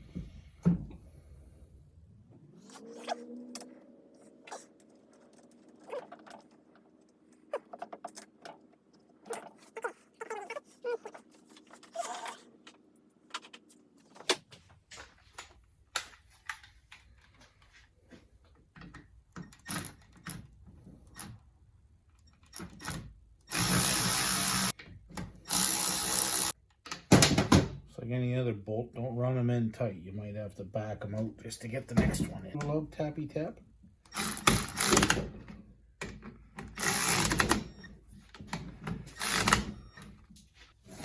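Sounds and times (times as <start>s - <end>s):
power drill driving bolts: 22.5s - 24.7s, 25.4s - 26.6s, 34.1s - 35.3s, 36.7s - 37.9s, 39.0s - 40.1s.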